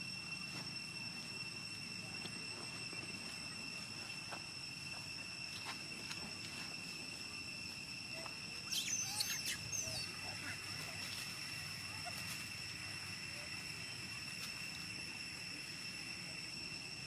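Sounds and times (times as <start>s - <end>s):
high-pitched insect drone: 0.0s - 17.0s
squeaky animal chirps: 8.7s - 10.1s.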